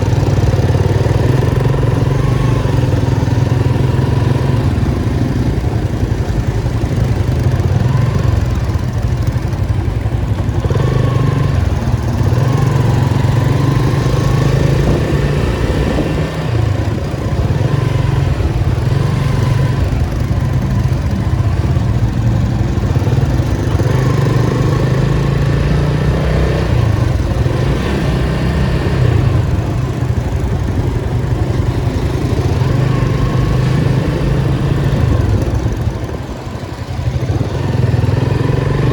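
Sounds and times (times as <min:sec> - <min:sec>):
car engine droning at low revs: 0:37.2 - 0:38.9.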